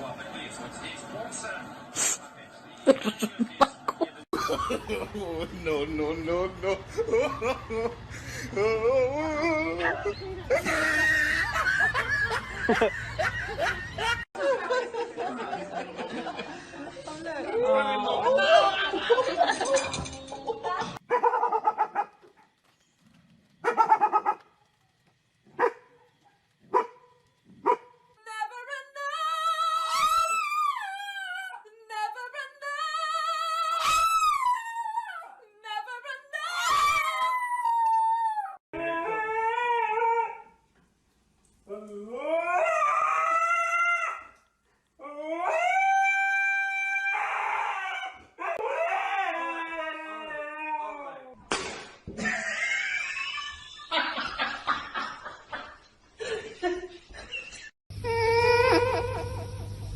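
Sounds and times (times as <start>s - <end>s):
dog barking: 21.1s - 22.2s, 23.6s - 24.5s, 25.6s - 26.1s, 26.7s - 28.0s
dog howling: 36.5s - 40.5s, 41.7s - 44.4s, 45.0s - 51.4s.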